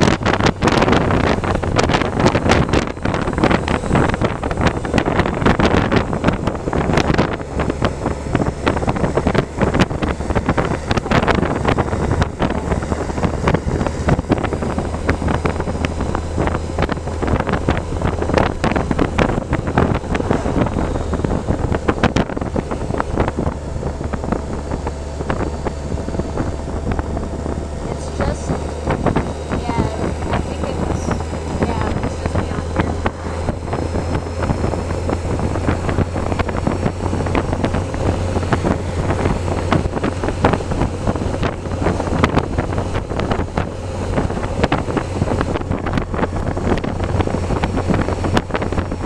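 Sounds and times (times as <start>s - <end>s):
steady low drone: 0.0s - 49.0s
wind buffeting microphone: 0.0s - 49.0s.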